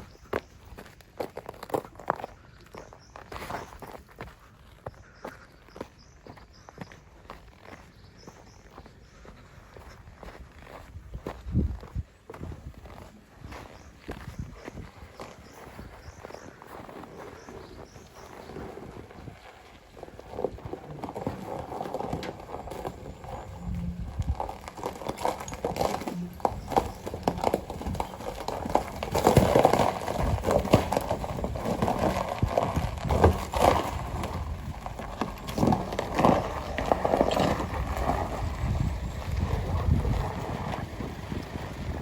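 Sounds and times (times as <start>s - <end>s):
ice cracking and crunching: 16.7s - 42.0s
rough noise: 17.4s - 42.0s
tyres breaking through ice: 20.0s - 40.8s.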